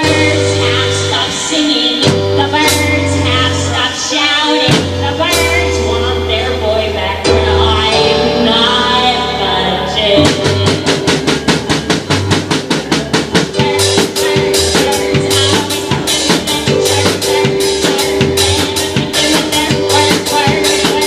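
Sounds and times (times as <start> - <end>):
band playing music: 0.0 - 21.0
fast drum beat: 10.2 - 21.0.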